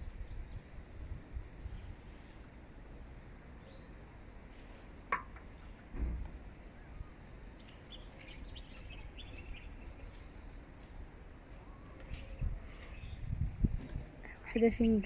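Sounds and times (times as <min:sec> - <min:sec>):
birds chirping: 0:06.6 - 0:11.0, 0:11.6 - 0:13.3.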